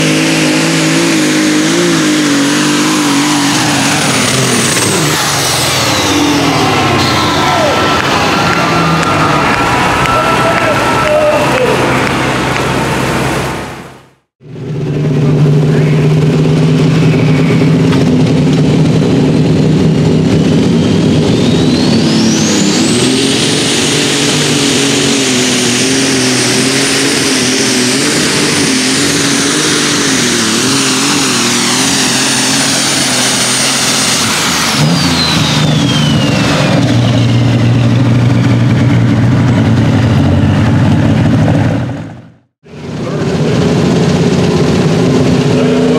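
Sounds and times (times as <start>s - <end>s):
high turbo whine: 0.0s - 45.9s
tractor engine revving: 0.0s - 45.9s.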